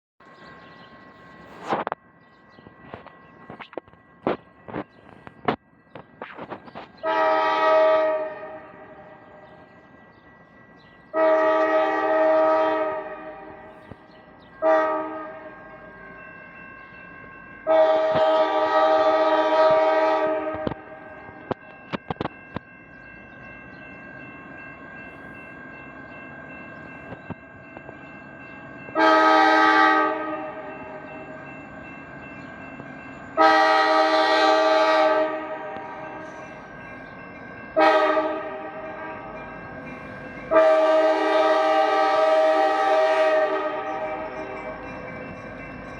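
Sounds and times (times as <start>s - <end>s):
locomotive air horn blasts: 7.0s - 8.8s, 11.2s - 13.6s, 14.6s - 15.5s, 17.7s - 21.0s, 29.0s - 30.7s, 33.4s - 36.1s, 37.8s - 39.3s, 40.5s - 44.2s.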